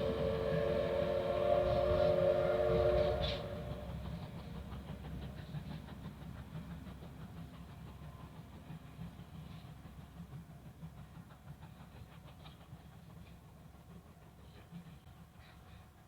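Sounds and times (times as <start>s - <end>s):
steam locomotive whistle: 0.0s - 4.2s
train running rumble: 0.0s - 16.0s.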